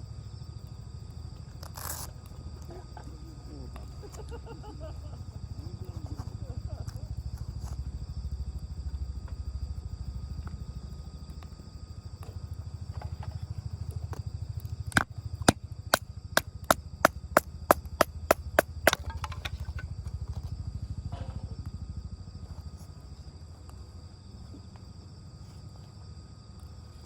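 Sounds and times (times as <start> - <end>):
axe striking firewood: 14.9 - 19.9.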